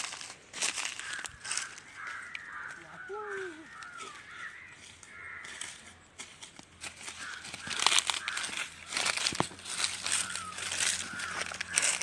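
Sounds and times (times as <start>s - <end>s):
outdoor background noise: 0.0s - 12.0s
bird calls: 0.5s - 6.2s, 6.9s - 12.0s.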